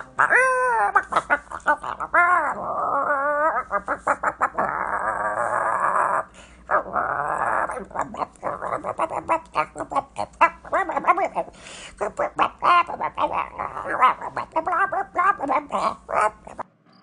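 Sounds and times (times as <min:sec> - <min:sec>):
animal growling: 0:00.0 - 0:16.6.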